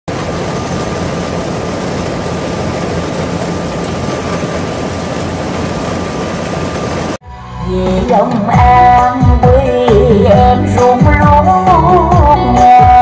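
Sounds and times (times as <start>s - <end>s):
combine harvester droning: 0.1s - 7.2s.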